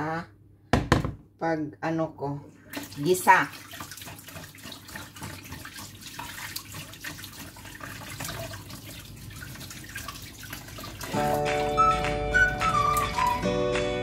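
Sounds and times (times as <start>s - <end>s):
hands rinsing food: 2.6s - 13.9s
background music: 11.1s - 14.0s.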